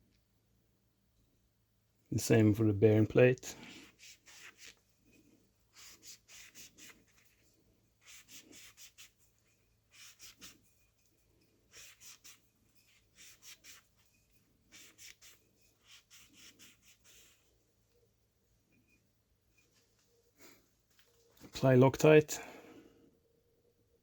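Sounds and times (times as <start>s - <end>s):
cloth rubbing strokes: 3.5s - 17.6s.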